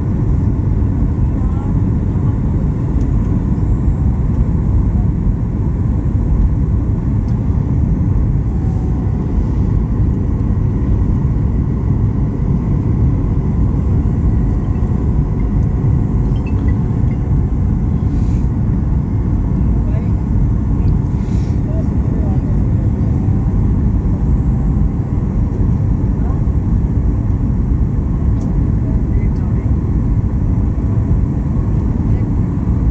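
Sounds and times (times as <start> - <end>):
vehicle rumble in motion: 0.0 - 32.9.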